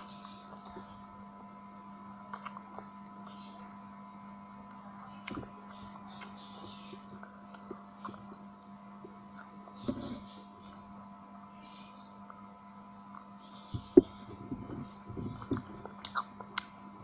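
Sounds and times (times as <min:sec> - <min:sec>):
steady electrical hum: 0:00.0 - 0:17.0
chewing and lip smacks: 0:02.3 - 0:02.9, 0:15.4 - 0:16.8.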